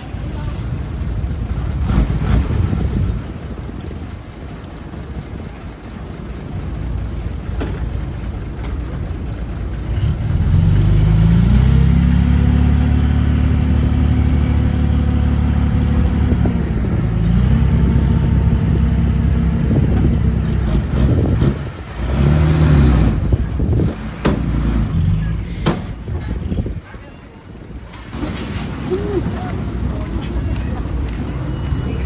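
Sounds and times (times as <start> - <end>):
heavy diesel engine revving: 1.0 - 3.7, 9.1 - 26.7.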